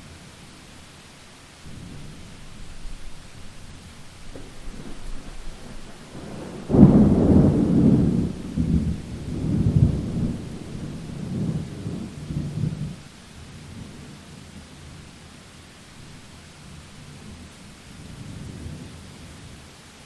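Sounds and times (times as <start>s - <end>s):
steady rainfall: 0.0s - 20.0s
thunder clap rolling: 1.7s - 13.0s.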